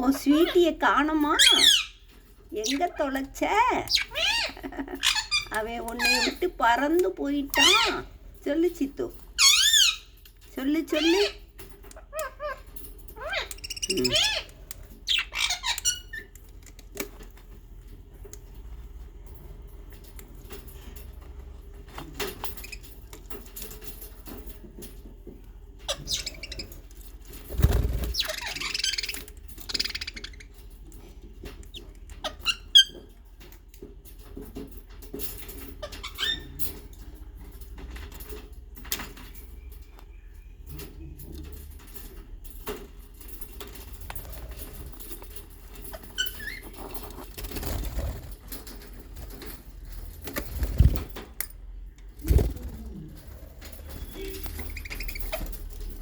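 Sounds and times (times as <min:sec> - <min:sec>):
bird wings flapping: 0:27.4 - 0:28.3, 0:47.2 - 0:49.5, 0:50.2 - 0:51.2, 0:52.2 - 0:53.3.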